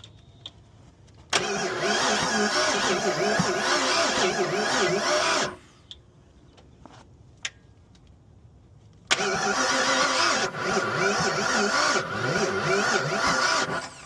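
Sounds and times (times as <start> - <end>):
engine cranking by starter: 1.3 - 5.8, 9.0 - 14.0.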